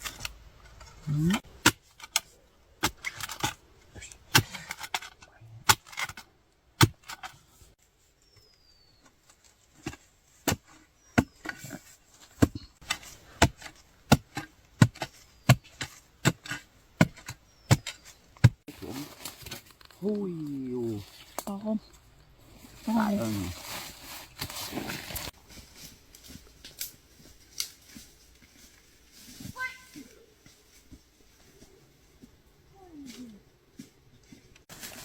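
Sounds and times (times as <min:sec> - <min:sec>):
digging tool chopping into ground: 0:01.4 - 0:02.2, 0:04.3 - 0:05.0, 0:09.8 - 0:18.6.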